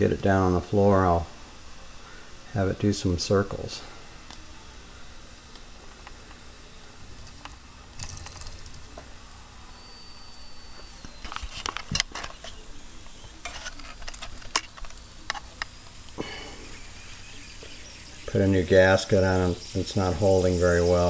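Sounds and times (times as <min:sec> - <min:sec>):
thin steam whistle: 0:09.7 - 0:11.3
steam sizzling: 0:12.3 - 0:21.0.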